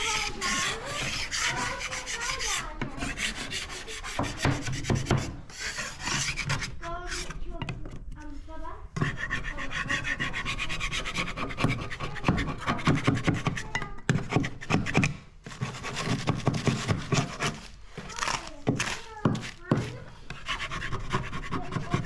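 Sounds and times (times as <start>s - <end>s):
sandpaper rubbing on wood: 0.0s - 7.4s, 9.0s - 13.6s, 14.2s - 17.8s, 20.3s - 22.0s.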